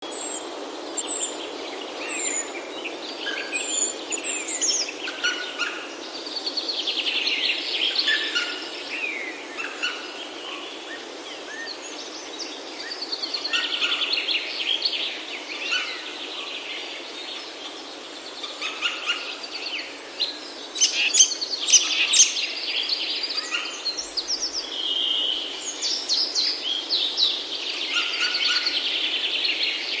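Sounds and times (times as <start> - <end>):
bird trilled song: 20.8 - 22.6.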